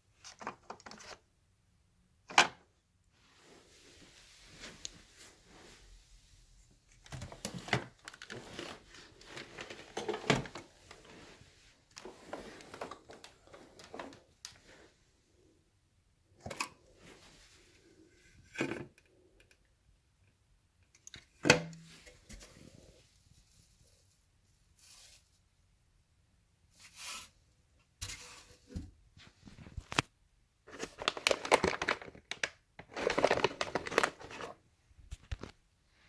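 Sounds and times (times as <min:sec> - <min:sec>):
plastic vacuum parts rattling: 0:07.0 - 0:11.2, 0:30.7 - 0:34.6.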